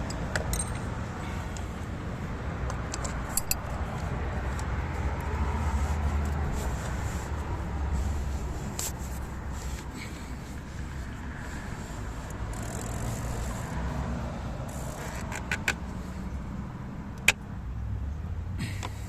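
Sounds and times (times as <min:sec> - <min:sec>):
sharp clicks of tools: 0:02.7 - 0:03.7.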